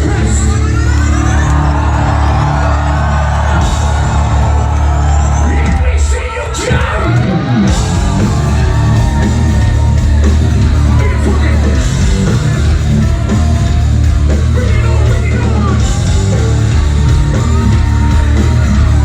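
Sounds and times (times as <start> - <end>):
live metal band playing: 0.0 - 19.0
person yelling over music: 7.8 - 19.0.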